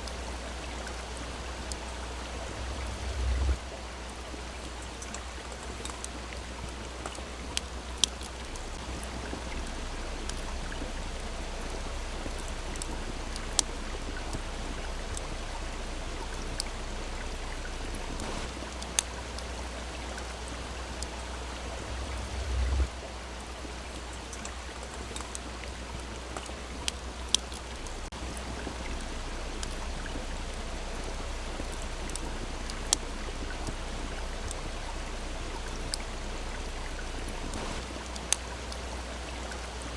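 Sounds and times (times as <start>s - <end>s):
small stream flowing: 0.0s - 39.9s
low rumble: 1.2s - 4.5s, 8.4s - 18.5s, 20.7s - 23.1s
campfire pops and crackles: 4.7s - 11.0s, 36.9s - 38.8s.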